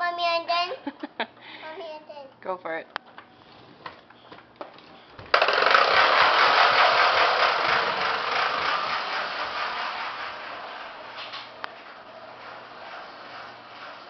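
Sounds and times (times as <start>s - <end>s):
toy truck rattling: 5.3s - 14.0s.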